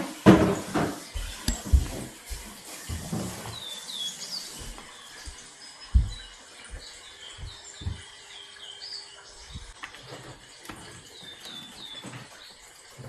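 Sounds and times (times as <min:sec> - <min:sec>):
small birds chirping: 0:00.3 - 0:13.0
dull low thumps: 0:05.2 - 0:08.2, 0:09.4 - 0:09.8.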